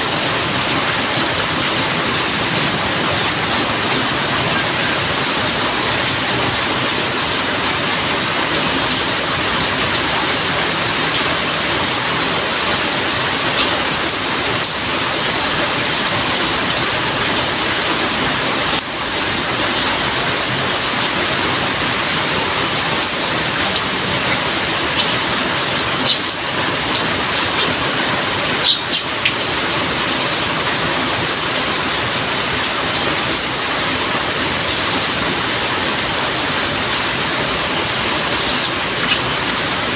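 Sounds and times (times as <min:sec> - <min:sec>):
raindrop ticks: 0:00.0 - 0:35.5, 0:36.4 - 0:39.9
heavy rain falling: 0:00.0 - 0:39.9.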